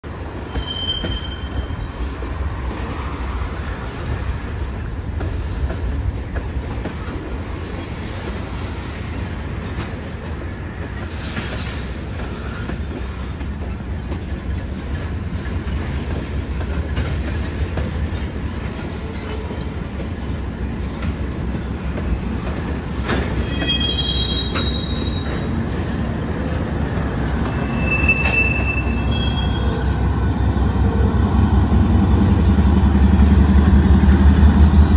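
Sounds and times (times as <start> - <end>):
train wheels rumbling on rail: 0.0 - 34.9
high-pitched wheel squeals: 0.5 - 1.9, 23.4 - 25.5, 27.5 - 29.9.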